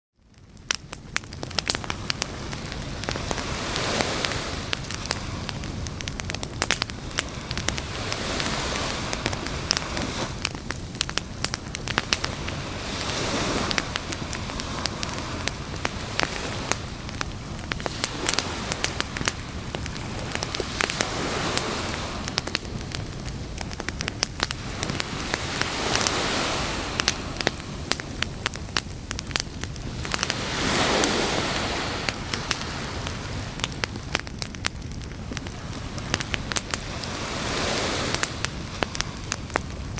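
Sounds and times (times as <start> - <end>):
campfire crackling and popping: 0.1 - 39.9
ocean waves washing in: 1.5 - 34.4, 35.2 - 39.9.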